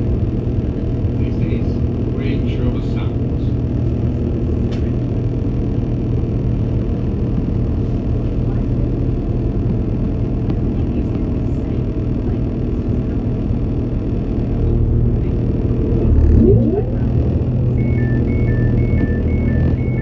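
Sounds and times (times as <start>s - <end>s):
train engine rumble: 0.0s - 20.0s
two-tone alternating beeping: 15.8s - 20.0s.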